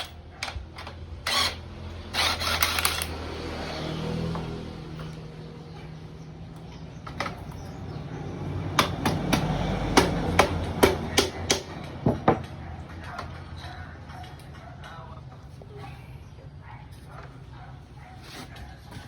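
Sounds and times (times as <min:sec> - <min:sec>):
sharp knocks on metal: 0:08.7 - 0:12.5.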